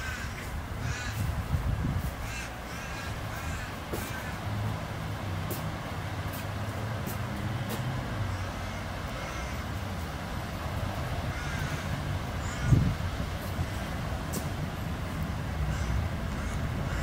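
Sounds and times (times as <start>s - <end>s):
distant diesel train rumble: 0.0s - 17.0s
birds calling: 2.2s - 4.6s, 8.2s - 13.8s, 15.2s - 17.0s.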